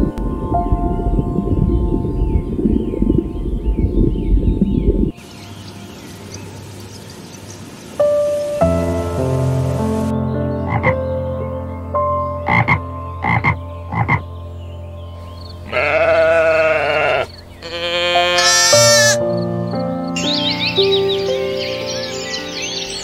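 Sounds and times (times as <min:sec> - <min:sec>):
soft background music: 0:00.0 - 0:23.0
sheep bleating: 0:15.6 - 0:19.2.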